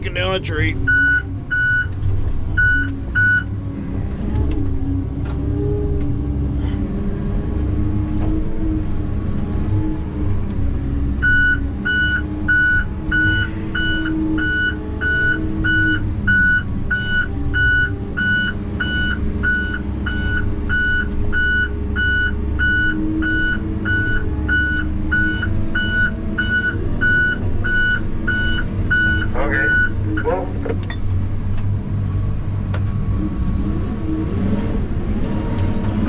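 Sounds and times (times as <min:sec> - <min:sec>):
heavy machine engine under load: 0:00.0 - 0:36.0
backup alarm beeping: 0:00.9 - 0:01.9, 0:11.2 - 0:30.4.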